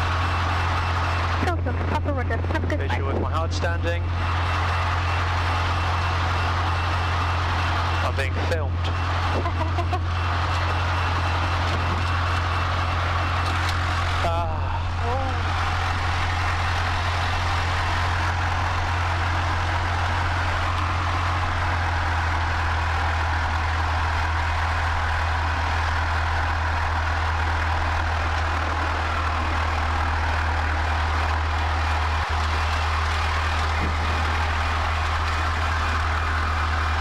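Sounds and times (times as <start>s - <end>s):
small plane engine droning: 0.0s - 37.0s.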